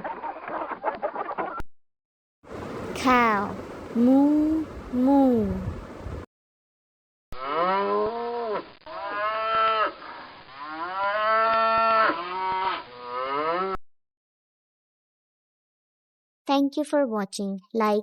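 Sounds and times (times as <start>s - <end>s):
cow mooing: 10.6s - 13.8s.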